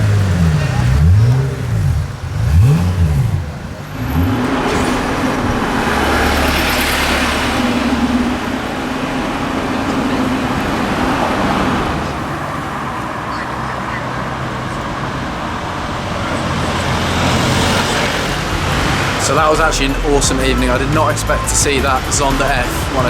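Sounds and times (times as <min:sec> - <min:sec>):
car engine revving: 0:00.0 - 0:23.0
road noise: 0:00.0 - 0:23.0.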